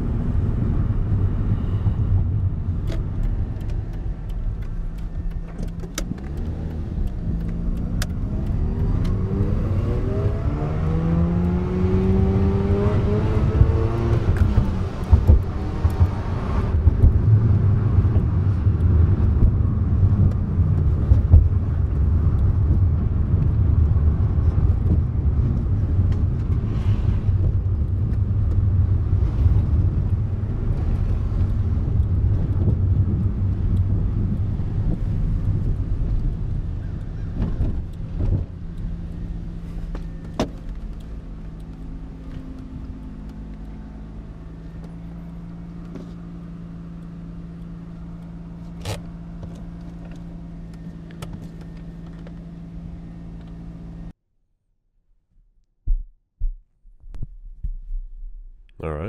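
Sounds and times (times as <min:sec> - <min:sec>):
car engine running: 0:00.0 - 0:54.1
sharp clicks: 0:02.8 - 0:11.6.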